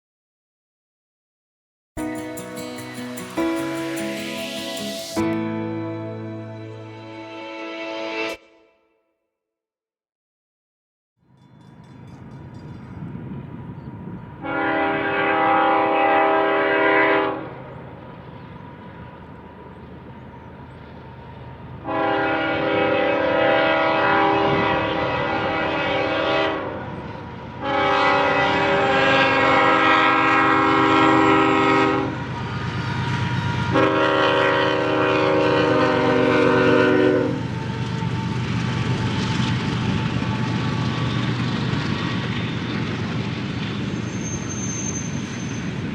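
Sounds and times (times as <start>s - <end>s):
passing train rumble: 11.2s - 45.9s
locomotive air horn blasts: 14.4s - 17.5s, 21.8s - 27.0s, 27.6s - 38.3s.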